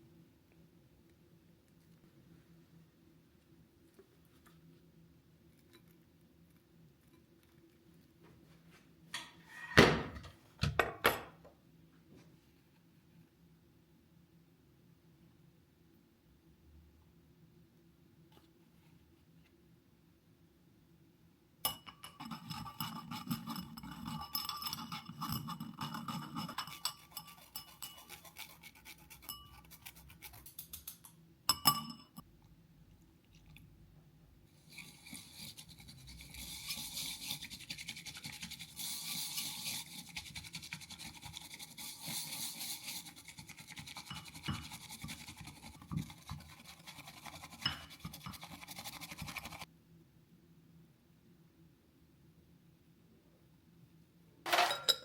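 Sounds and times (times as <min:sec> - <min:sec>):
utensil scraping or whisking: 0:21.9 - 0:31.1, 0:34.5 - 0:49.7
utensil clink: 0:54.5 - 0:55.0.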